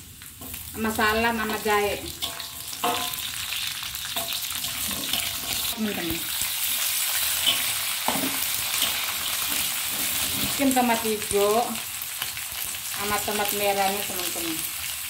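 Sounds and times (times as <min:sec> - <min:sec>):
food sizzling in hot oil: 0:00.0 - 0:15.0
metal spatula scraping wok: 0:00.4 - 0:10.9.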